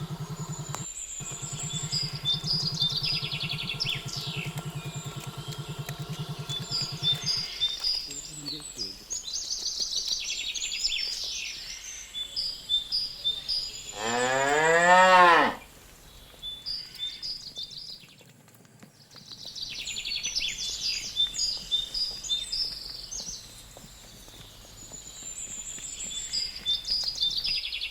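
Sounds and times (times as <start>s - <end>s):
small birds chirping: 0.0s - 27.9s
cow mooing: 13.9s - 15.6s.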